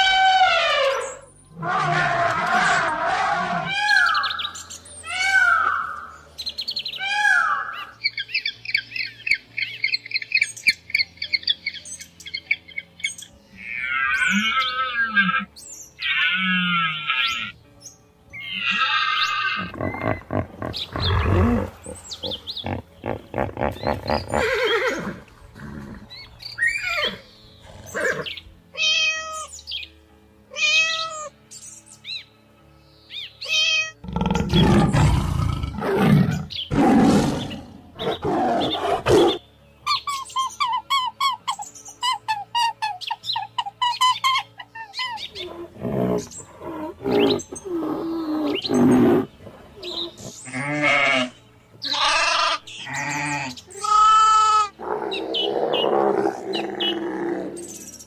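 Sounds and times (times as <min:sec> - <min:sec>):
animal cries: 0:00.0 - 0:06.1, 0:07.0 - 0:08.0, 0:13.5 - 0:17.6, 0:18.4 - 0:29.5, 0:30.5 - 0:31.4, 0:33.4 - 0:58.0
chattering animal calls: 0:18.4 - 0:28.4, 0:34.1 - 0:58.0
deep animal calls: 0:18.5 - 0:28.3, 0:45.0 - 0:51.3.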